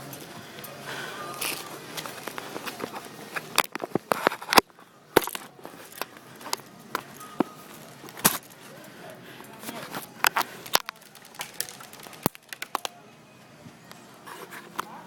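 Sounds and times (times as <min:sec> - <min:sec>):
irregular sharp clicks and snaps: 0:10.3 - 0:12.9.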